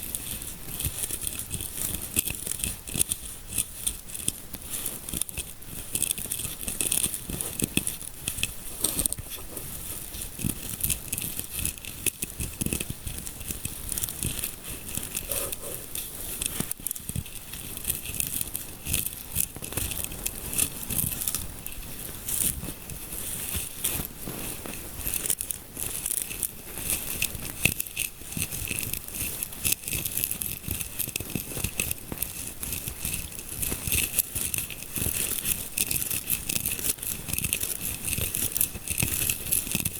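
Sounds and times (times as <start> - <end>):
fingers scratching microphone: 5.0 - 25.6.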